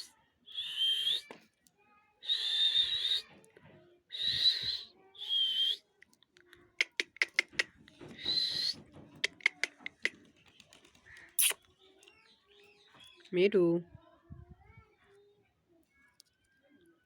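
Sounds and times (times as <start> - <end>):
sharp clicks: 6.4 - 7.7.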